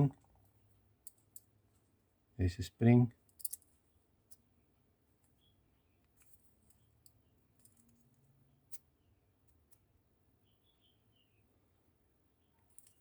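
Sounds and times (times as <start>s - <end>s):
small plastic parts clicking: 12.7s - 13.0s.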